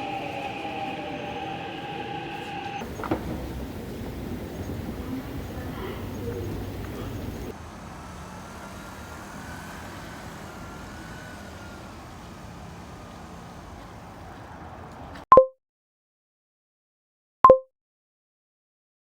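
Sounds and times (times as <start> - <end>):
faint background hum: 0.0 - 7.5
faint wavering whistle tone: 0.0 - 7.5.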